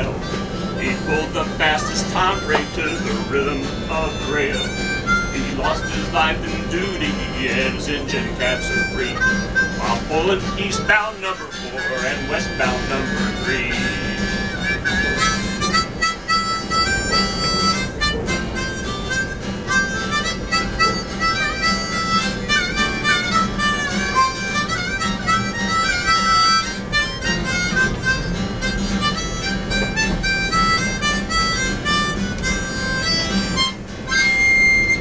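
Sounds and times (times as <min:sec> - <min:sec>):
steady low tone: 0:00.0 - 0:24.9
harmonica melody: 0:00.0 - 0:35.0.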